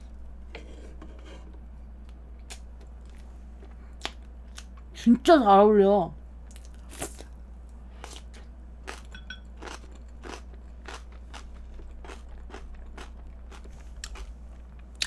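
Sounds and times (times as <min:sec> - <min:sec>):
crisp chewing crunches: 0:08.0 - 0:15.0.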